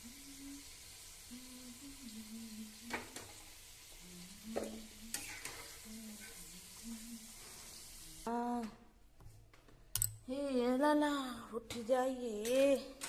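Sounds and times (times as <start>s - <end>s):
pakoras sizzling in hot oil: 0.0s - 8.3s.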